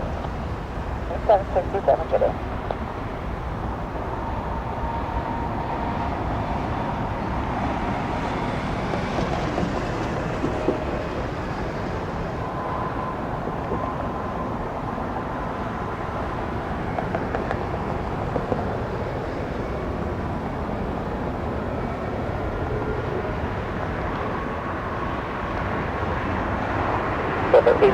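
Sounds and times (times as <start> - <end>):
jet engines roaring: 0.0 - 27.9.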